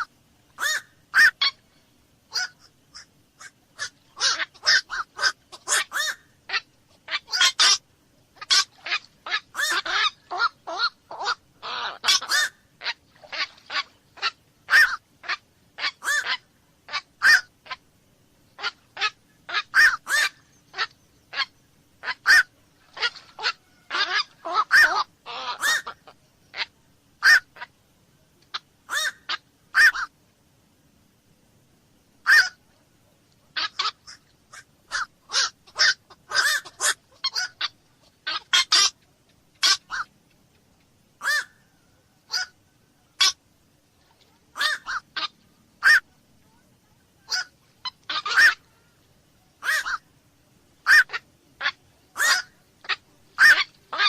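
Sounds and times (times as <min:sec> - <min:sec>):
herons giving harsh calls: 0:00.0 - 0:01.6, 0:02.3 - 0:07.8, 0:08.4 - 0:17.9, 0:18.6 - 0:27.8, 0:28.5 - 0:30.1, 0:32.2 - 0:32.6, 0:33.6 - 0:39.0, 0:39.6 - 0:40.1, 0:41.2 - 0:41.7, 0:42.3 - 0:43.4, 0:44.5 - 0:46.1, 0:47.3 - 0:48.7, 0:49.6 - 0:50.1, 0:50.8 - 0:54.0.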